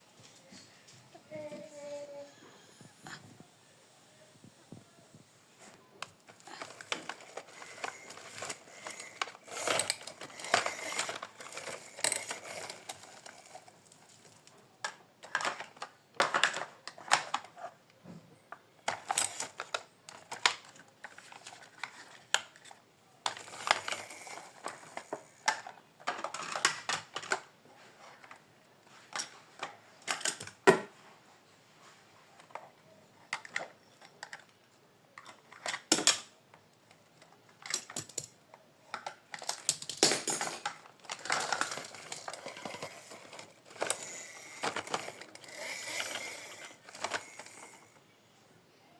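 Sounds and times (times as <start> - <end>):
toy parts clicking and rattling: 6.0 - 17.7, 18.8 - 27.5, 29.0 - 30.8, 33.3 - 34.5, 35.2 - 36.3, 37.2 - 48.0.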